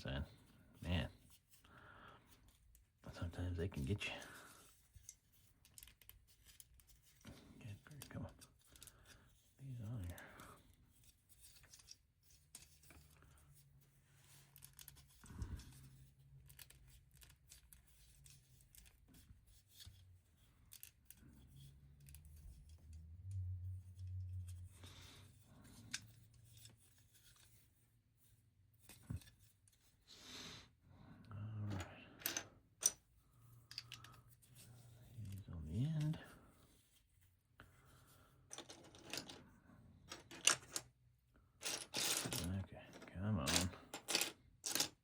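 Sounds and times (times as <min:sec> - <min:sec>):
plastic bricks clicking and rattling: 0:41.6 - 0:45.0.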